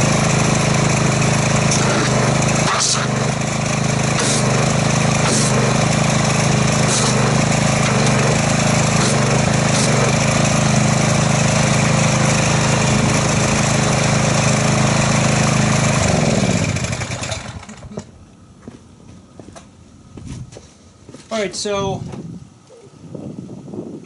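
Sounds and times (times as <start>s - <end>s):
pressure washer engine running: 0.0s - 18.1s
water jet hissing into bucket: 6.8s - 8.0s.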